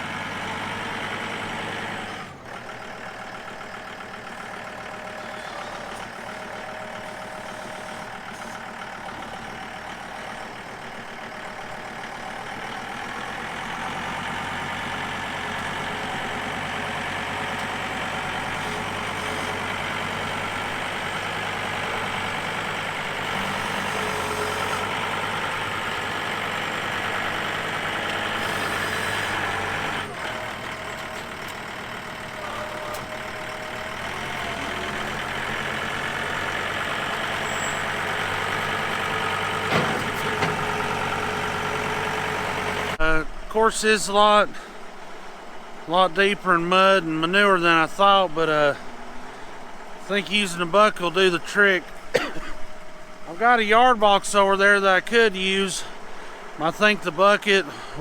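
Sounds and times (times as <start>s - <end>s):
tractor engine running: 0.0s - 58.0s
loader bucket scraping mud: 15.3s - 31.6s.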